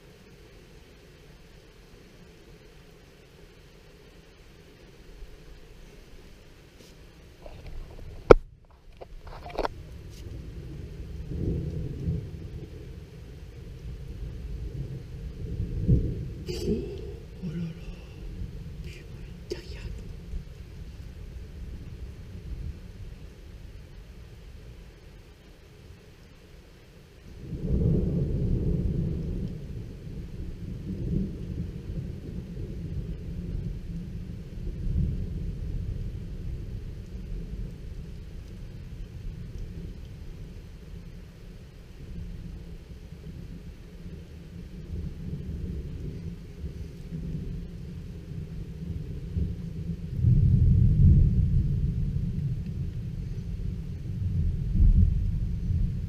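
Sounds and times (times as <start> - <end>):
thunder crackles: 9.1 - 24.8, 27.2 - 56.0
low thunder rumble: 9.7 - 25.3, 27.2 - 56.0.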